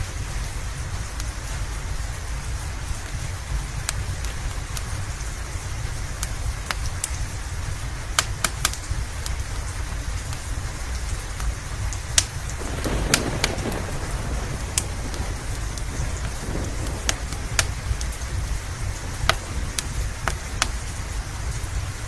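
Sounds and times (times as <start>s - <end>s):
steady rain hiss: 0.0s - 22.0s
wood fire crackling and popping: 0.0s - 22.0s
low rumble: 11.8s - 22.0s.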